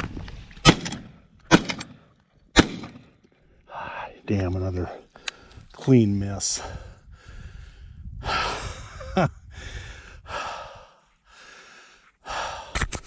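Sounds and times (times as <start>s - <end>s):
man breathing hard: 6.6s - 13.0s.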